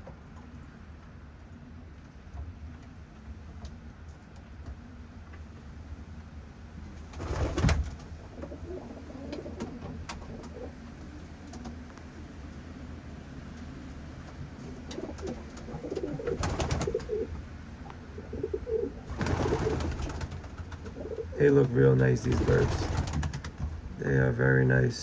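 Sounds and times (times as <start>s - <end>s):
pigeons cooing: 7.2s - 11.7s, 14.7s - 23.7s.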